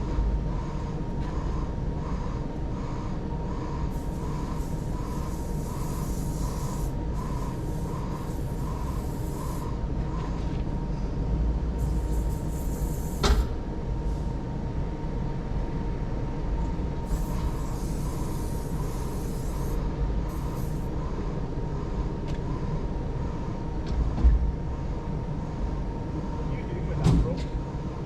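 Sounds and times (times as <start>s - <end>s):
thin steady whine: 0.0s - 27.0s
hiss: 3.6s - 9.8s, 11.8s - 13.6s, 17.0s - 21.0s
thump: 13.2s - 13.5s.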